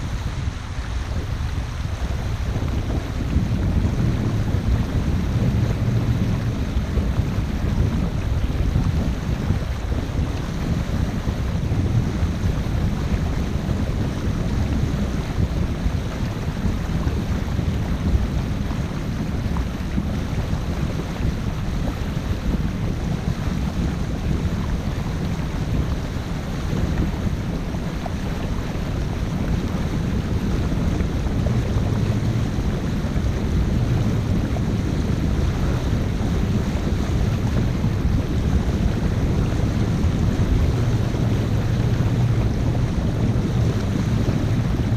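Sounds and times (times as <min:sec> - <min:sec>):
boat engine rumble: 0:00.0 - 0:44.9
water noise: 0:00.0 - 0:44.9
wind buffeting microphone: 0:00.0 - 0:44.9.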